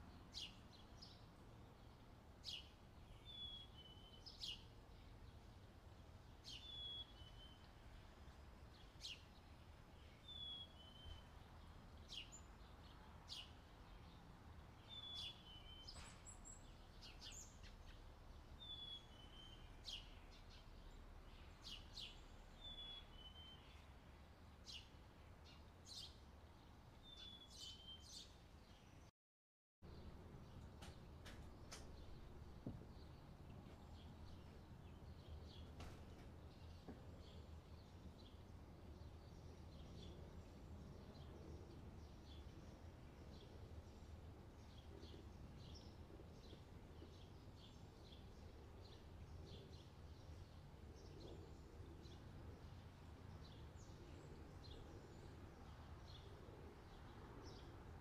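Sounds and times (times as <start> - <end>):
small bird chirping: 14.8 - 23.9.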